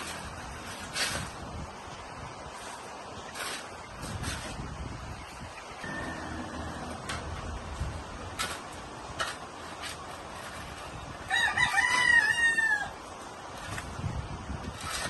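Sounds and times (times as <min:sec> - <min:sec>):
rooster crowing: 0:11.3 - 0:13.0.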